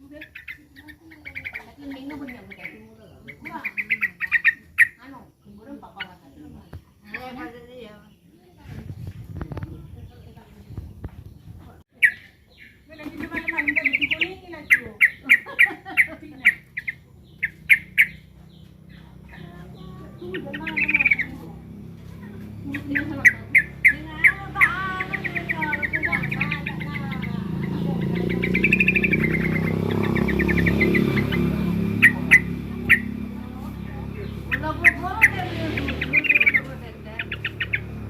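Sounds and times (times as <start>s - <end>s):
bird chipping and rattling calls: 0.0s - 8.0s, 10.5s - 38.0s.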